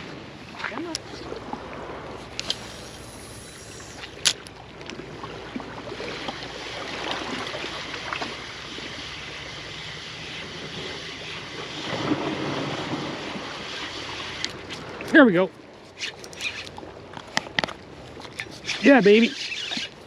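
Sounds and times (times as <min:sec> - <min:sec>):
ocean surf washing onto beach: 0:06.0 - 0:15.4.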